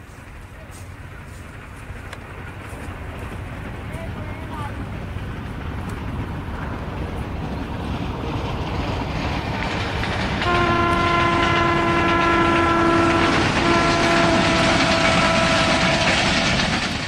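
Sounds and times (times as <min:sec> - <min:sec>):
loud rumbling noise: 0:00.0 - 0:17.0
horn blasts: 0:10.4 - 0:16.4.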